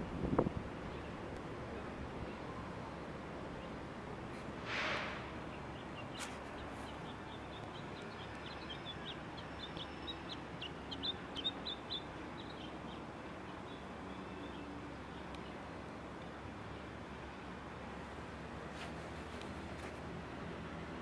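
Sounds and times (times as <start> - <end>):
low background noise: 0.0 - 21.0
small bird chirping: 5.5 - 15.6.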